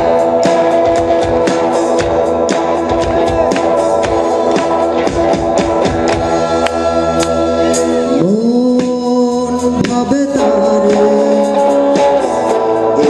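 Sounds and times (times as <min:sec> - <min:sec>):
band accompaniment: 0:00.0 - 0:13.0.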